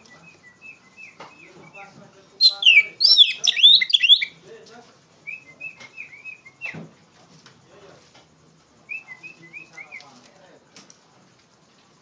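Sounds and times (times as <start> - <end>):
bird chirping: 0.0 - 4.4, 5.2 - 6.8, 8.9 - 10.2.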